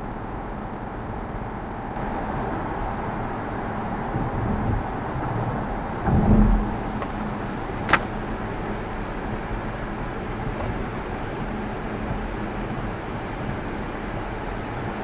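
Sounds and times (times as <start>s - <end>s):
tyre and road noise: 0.0s - 15.0s
low thump: 6.0s - 8.1s.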